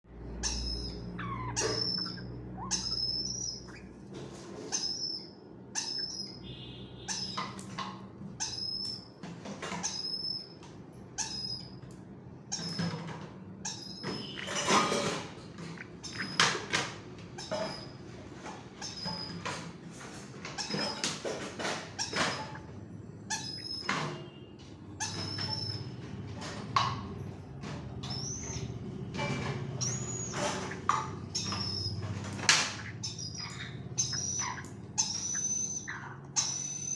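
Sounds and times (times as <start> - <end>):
parrot chicks begging calls: 0.2 - 4.0, 4.6 - 7.8, 13.6 - 18.0, 20.6 - 23.9, 28.0 - 36.9.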